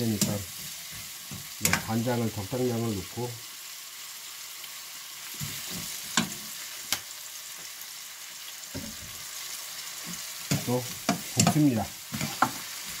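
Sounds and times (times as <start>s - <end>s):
vegetables sizzling in a wok: 0.0s - 13.0s.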